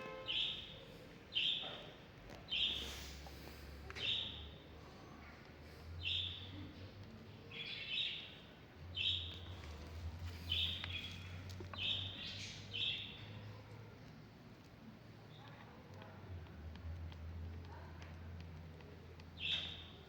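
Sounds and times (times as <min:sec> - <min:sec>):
small bird chirping: 0:00.1 - 0:03.2, 0:04.0 - 0:04.6, 0:06.0 - 0:06.7, 0:07.4 - 0:13.5, 0:19.3 - 0:20.0.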